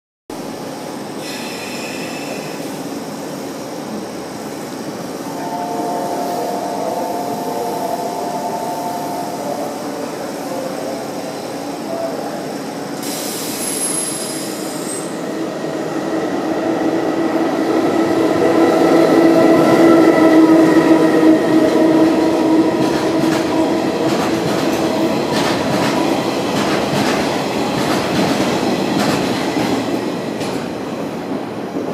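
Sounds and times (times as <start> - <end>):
passing train running hum: 0.3 - 31.9.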